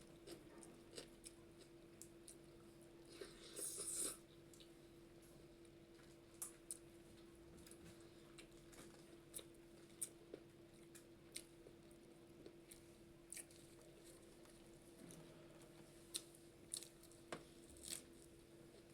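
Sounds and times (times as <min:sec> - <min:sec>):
person chewing: 0:00.2 - 0:01.7, 0:03.1 - 0:04.7, 0:12.4 - 0:14.2, 0:16.1 - 0:17.2.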